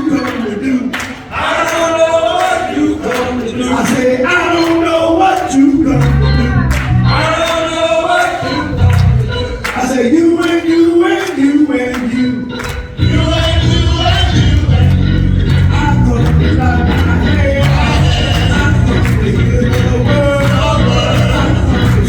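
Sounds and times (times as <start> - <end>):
gospel choir singing: 0.0 - 22.0
instrumental accompaniment with beat: 0.3 - 22.0
deep bass notes: 5.8 - 7.4, 8.7 - 9.4, 13.0 - 22.0.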